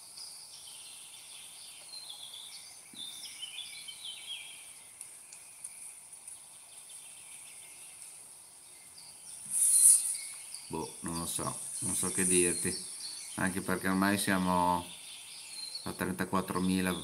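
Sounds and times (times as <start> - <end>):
small bird chirping: 0.0 - 17.0
high-pitched insect hum: 7.0 - 13.5.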